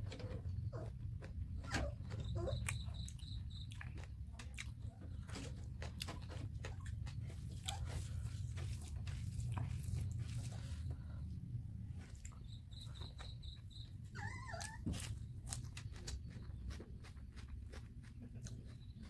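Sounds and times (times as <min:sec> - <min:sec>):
low hum: 0:00.0 - 0:19.0
wet chewing and lip smacks: 0:02.2 - 0:10.5, 0:12.0 - 0:19.0.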